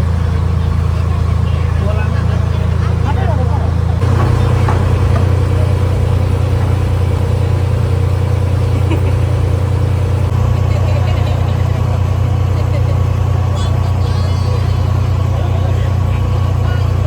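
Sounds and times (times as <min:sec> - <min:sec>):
ferry engine humming: 0:00.0 - 0:17.0.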